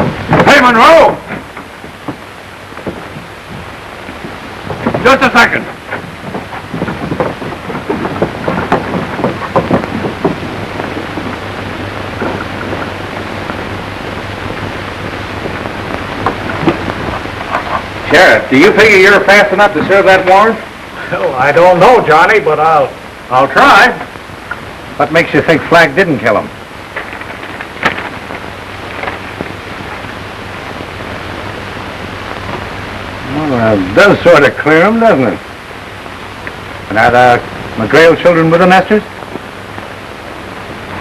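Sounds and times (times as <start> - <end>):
film soundtrack hiss: 0.0 - 41.0
low hum: 0.0 - 41.0
dialogue: 0.3 - 9.9, 16.2 - 30.0, 32.3 - 39.4.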